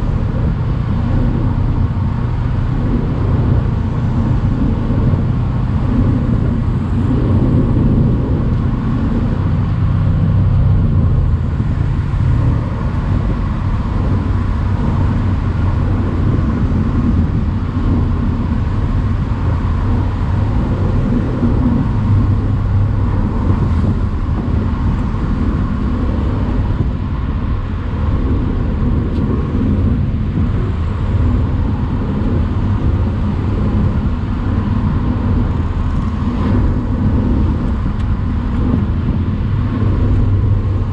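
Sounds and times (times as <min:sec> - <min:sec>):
car engine: 0:00.0 - 0:40.9
road and wind noise: 0:00.0 - 0:40.9.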